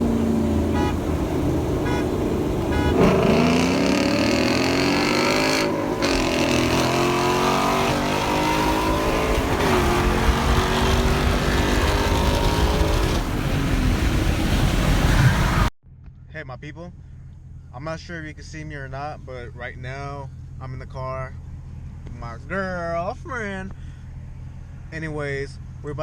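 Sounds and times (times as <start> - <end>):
car engine accelerating: 0.0 - 16.2.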